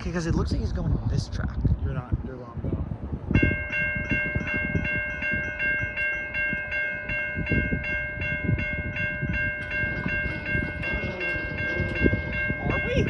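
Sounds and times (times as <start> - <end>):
railroad crossing bell ringing: 3.4 - 13.0.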